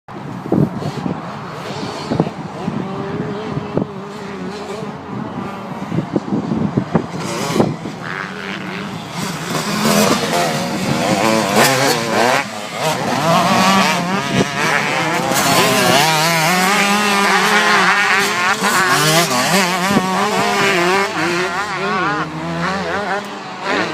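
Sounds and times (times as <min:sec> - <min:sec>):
motocross bike engines revving: 0:00.2 - 0:23.9.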